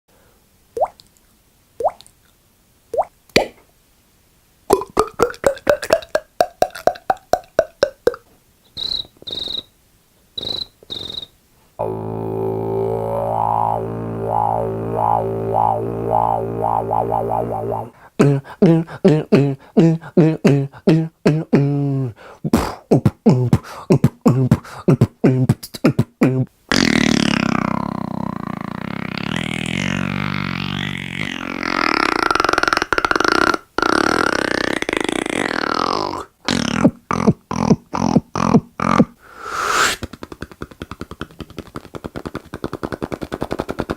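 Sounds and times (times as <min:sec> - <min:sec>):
beatbox mouth sound effects: 0:04.7 - 0:09.7, 0:10.4 - 0:43.9
rapid mouth clicks: 0:04.7 - 0:09.7, 0:10.4 - 0:11.3, 0:13.3 - 0:21.5, 0:22.5 - 0:30.0, 0:30.6 - 0:43.9
pulsing buzzing hum: 0:11.8 - 0:18.0.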